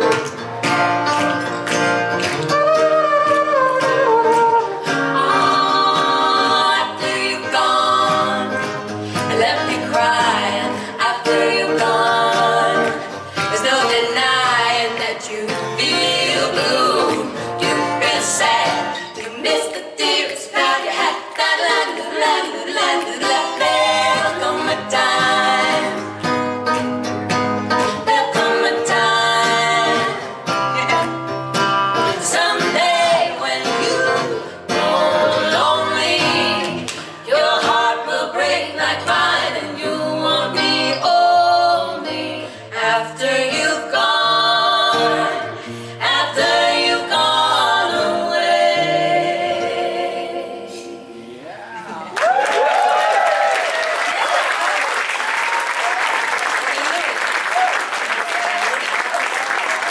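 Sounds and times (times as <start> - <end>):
women singing in harmony: 2.6 - 26.3, 27.9 - 31.1, 32.0 - 51.2.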